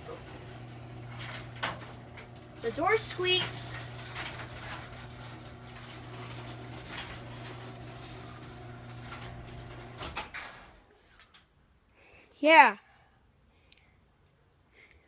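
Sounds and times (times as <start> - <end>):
garage door opener motor humming: 0.0 - 10.8.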